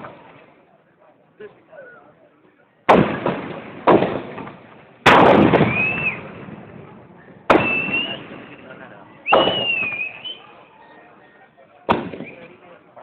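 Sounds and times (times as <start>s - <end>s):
firework bangs: 2.9s - 10.5s, 11.9s - 12.8s
high whistle: 5.7s - 6.2s, 7.6s - 11.4s.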